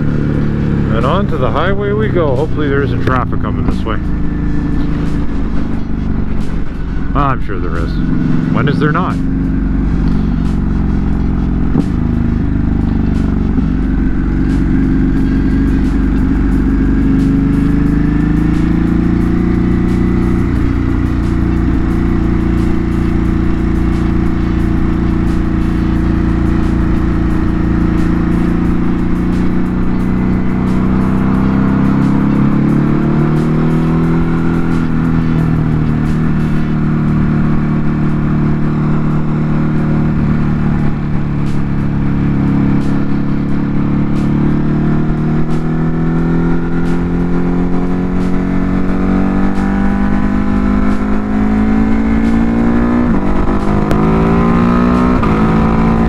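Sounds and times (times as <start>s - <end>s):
motorcycle engine at speed: 0.0s - 56.0s.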